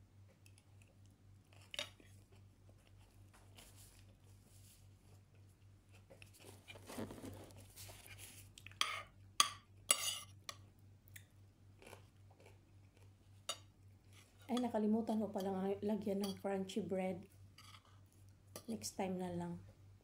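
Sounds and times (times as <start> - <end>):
chewing: 11.1 - 14.4.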